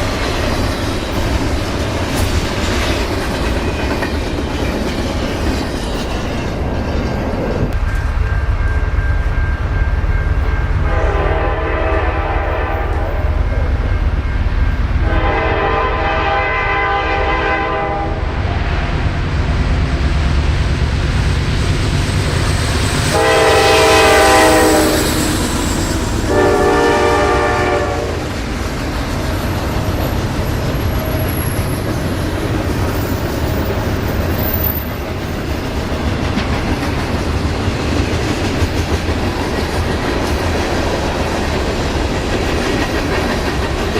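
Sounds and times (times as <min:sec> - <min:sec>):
train rumbling on rails: 0:00.0 - 0:43.9
locomotive horn blasts: 0:10.8 - 0:13.3, 0:15.0 - 0:18.3, 0:23.2 - 0:25.2, 0:26.2 - 0:28.3.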